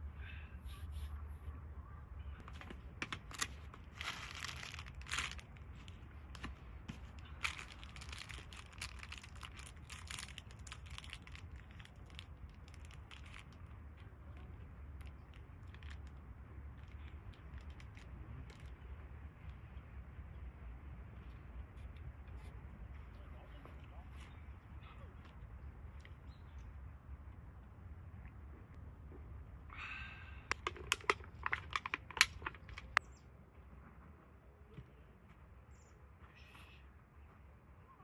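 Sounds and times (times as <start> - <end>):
rustling and crinkling handling: 2.4 - 18.9, 30.5 - 33.0
scattered clicks: 30.5 - 33.0.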